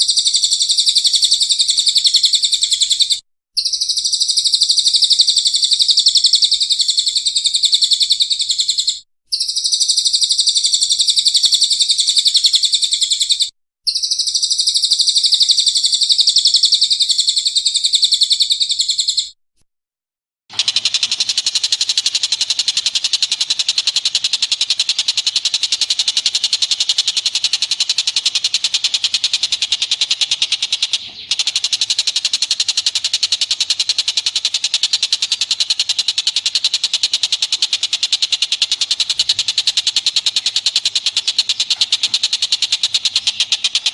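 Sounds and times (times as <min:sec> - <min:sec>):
rapid high bird chirping: 0:00.0 - 0:19.4, 0:20.5 - 0:43.9.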